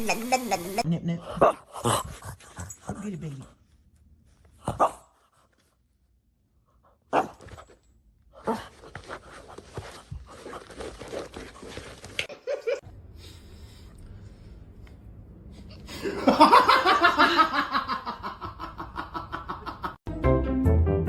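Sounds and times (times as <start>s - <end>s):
person laughing loudly: 16.0s - 20.0s.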